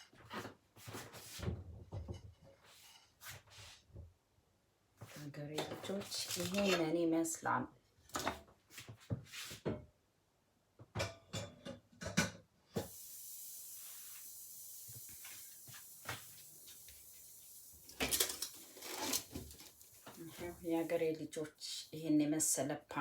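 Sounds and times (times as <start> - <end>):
faint steady hiss: 12.6 - 23.0
kitchen things knocking: 17.9 - 20.7.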